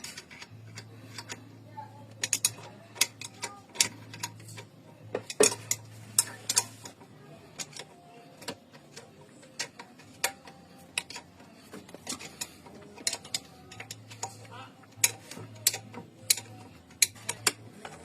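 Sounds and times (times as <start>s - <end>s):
metal hand tools clinking: 7.6s - 18.0s.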